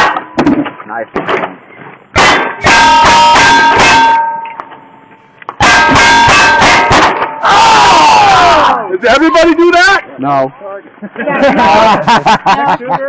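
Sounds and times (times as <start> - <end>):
steel targets ringing: 0.0 - 0.6, 2.1 - 8.0
gunshots: 2.2 - 4.4, 5.6 - 7.4.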